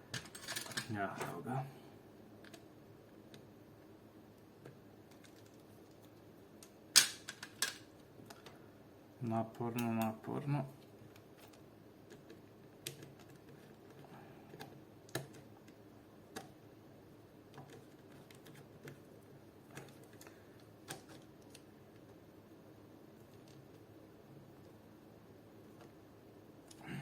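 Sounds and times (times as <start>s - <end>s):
faint clicks and taps of parts: 4.6s - 8.6s.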